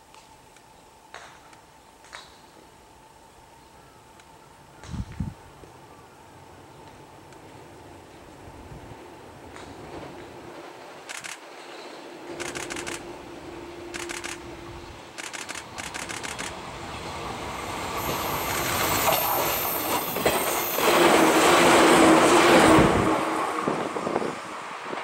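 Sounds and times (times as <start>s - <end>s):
train running noise: 4.9s - 25.0s
train wheel clicks over rail joints: 11.0s - 11.6s, 12.3s - 13.1s, 13.9s - 14.5s, 15.1s - 16.6s
high wheel squeal: 17.6s - 22.1s.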